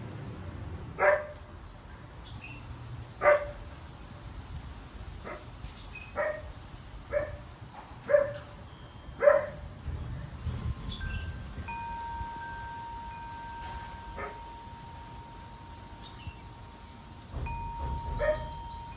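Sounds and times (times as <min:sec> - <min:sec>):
dog barking: 0:01.0 - 0:01.4, 0:03.2 - 0:03.6, 0:06.2 - 0:06.5, 0:07.1 - 0:07.4, 0:08.1 - 0:08.4, 0:09.2 - 0:09.6
wind rumbling: 0:09.6 - 0:18.9
metal wind chimes ringing: 0:10.4 - 0:18.9.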